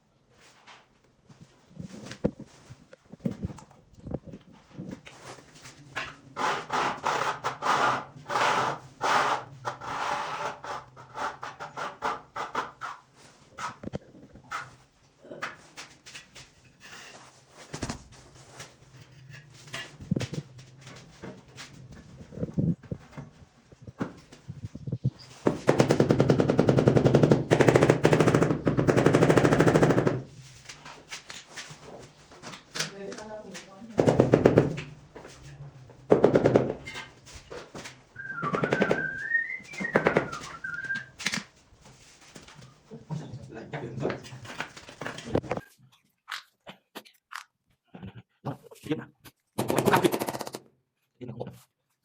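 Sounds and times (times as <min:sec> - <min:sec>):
rapid tapping: 0:25.5 - 0:30.2
hand tools knocking on tile: 0:33.9 - 0:34.9, 0:36.1 - 0:37.0, 0:38.2 - 0:41.0
person whistling a tune: 0:38.2 - 0:41.1.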